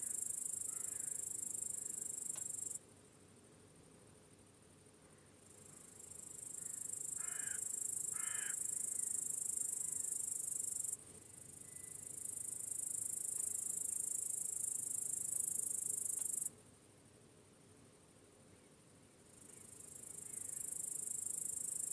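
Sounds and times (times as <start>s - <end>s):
crickets chirring: 0.0s - 2.8s, 5.4s - 16.5s, 19.3s - 21.9s.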